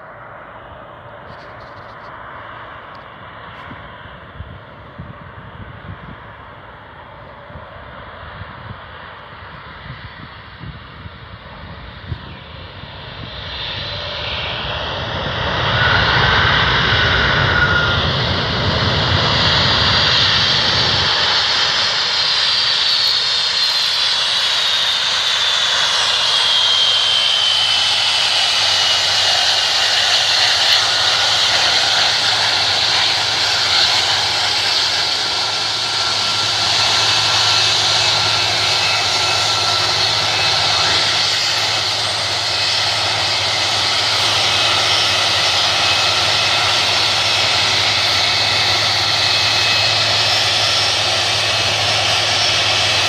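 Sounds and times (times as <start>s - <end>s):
jet engines roaring: 0.0s - 53.0s
high whine falling in pitch: 22.7s - 28.4s.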